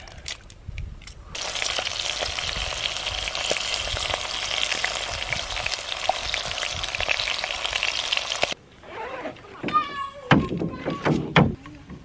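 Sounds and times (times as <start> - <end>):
food sizzling in a pot: 1.4 - 8.6.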